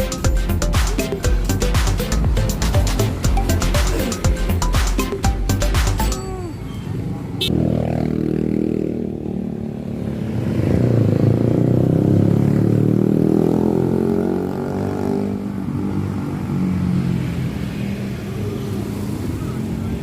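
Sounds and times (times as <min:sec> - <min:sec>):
passing vehicle engine: 0:06.3 - 0:20.0.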